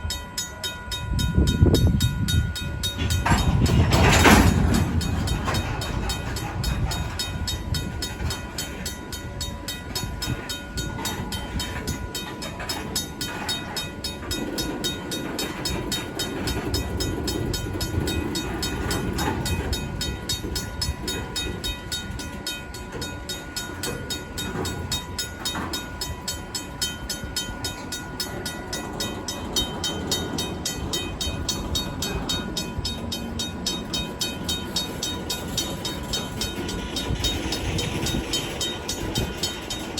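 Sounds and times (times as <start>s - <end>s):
crossing bell ringing: 0.0s - 39.9s
freight car wheels clattering: 3.0s - 8.4s.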